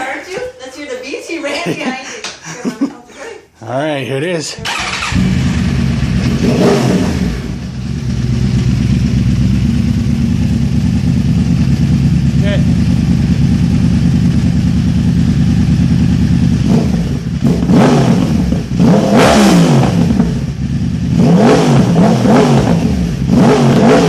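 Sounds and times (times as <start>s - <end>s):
engine throttle blips: 4.6s - 24.0s
motorcycle engine idling: 4.7s - 18.8s, 20.0s - 21.2s.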